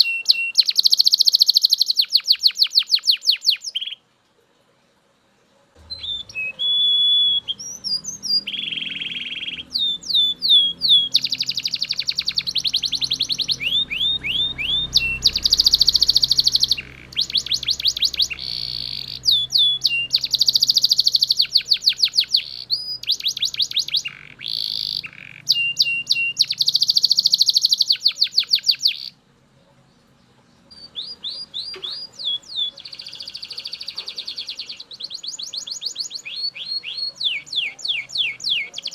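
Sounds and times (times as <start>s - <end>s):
canary singing trills: 0.0s - 4.1s, 5.8s - 38.9s.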